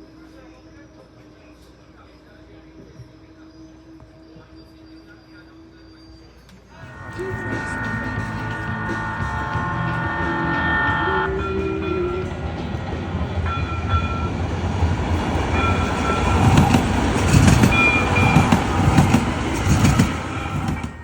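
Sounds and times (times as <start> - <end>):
train horn chord: 6.8 - 21.0.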